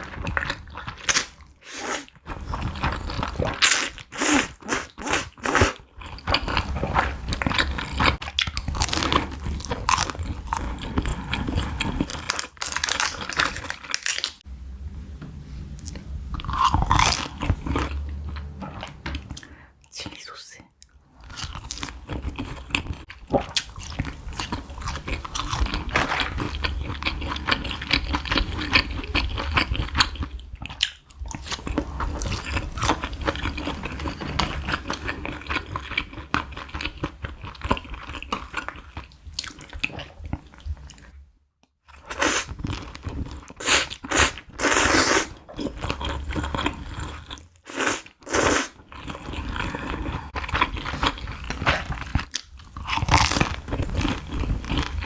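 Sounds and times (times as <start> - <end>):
crunchy bites and chewing: 0.0 - 14.4, 16.4 - 18.0, 21.3 - 33.8, 41.9 - 55.0.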